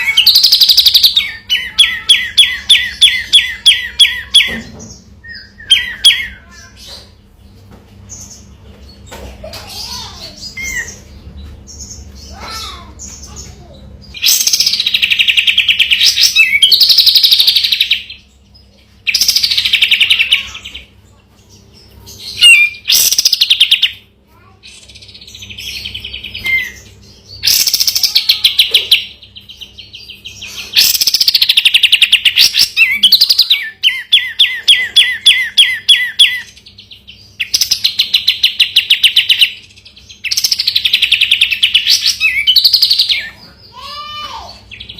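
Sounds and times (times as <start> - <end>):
bulbul singing rattling trills: 0.0 - 44.9.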